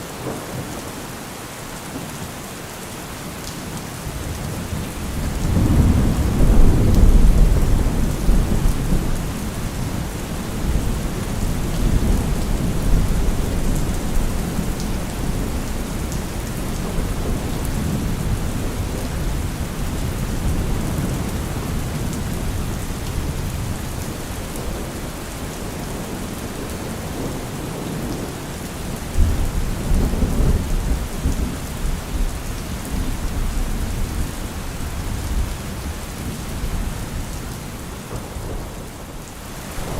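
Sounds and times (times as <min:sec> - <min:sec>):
steady rain: 0:00.0 - 0:39.9
rolling thunder: 0:04.8 - 0:25.0, 0:37.8 - 0:39.9.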